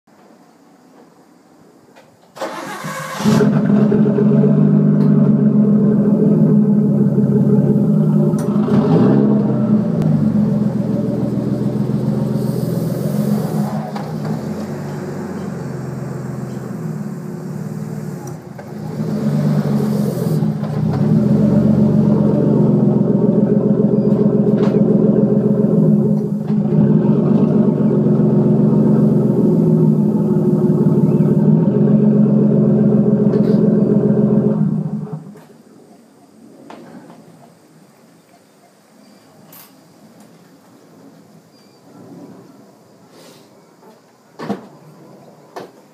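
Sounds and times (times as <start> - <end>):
car engine driving slowly: 3.2 - 35.4.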